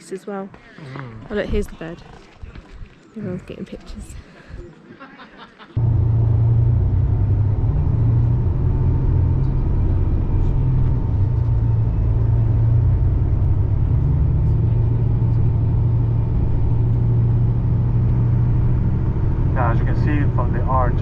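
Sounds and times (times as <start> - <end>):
coach engine and tyres droning: 5.8 - 21.0.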